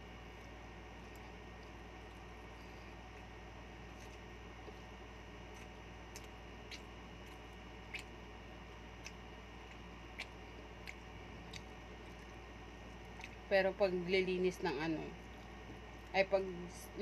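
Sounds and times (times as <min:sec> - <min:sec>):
low hum: 0:00.0 - 0:17.0
mouth clicks and lip smacks: 0:05.6 - 0:08.2, 0:09.0 - 0:12.4, 0:13.0 - 0:13.5.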